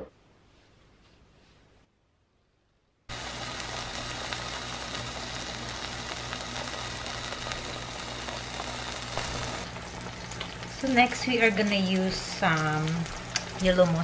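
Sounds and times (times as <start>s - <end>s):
low steady hum: 0.0s - 14.0s
patties sizzling in a frying pan: 3.1s - 14.0s.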